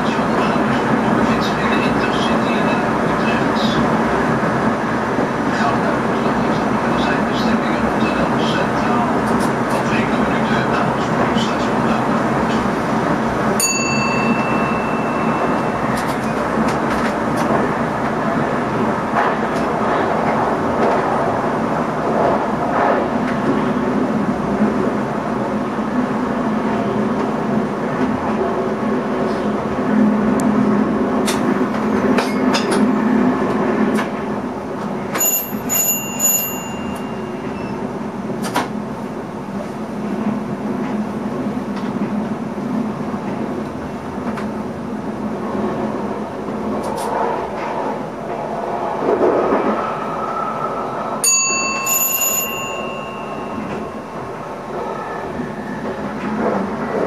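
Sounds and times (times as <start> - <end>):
train wheel and traction noise: 0.0 - 57.0
clicks from the track: 15.9 - 17.6, 32.1 - 32.9, 38.4 - 38.8.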